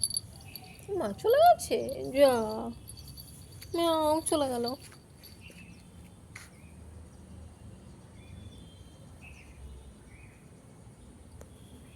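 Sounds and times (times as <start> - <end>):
distant bird chirps: 0.0 - 4.4
low steady rumble: 0.0 - 5.4.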